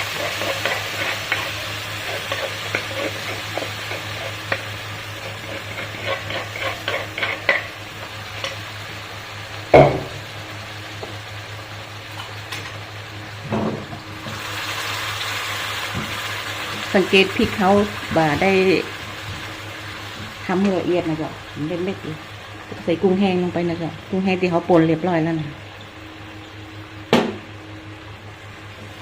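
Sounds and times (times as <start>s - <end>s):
spatula scraping and tapping pan: 0.0s - 8.6s
light sizzle: 0.0s - 29.0s.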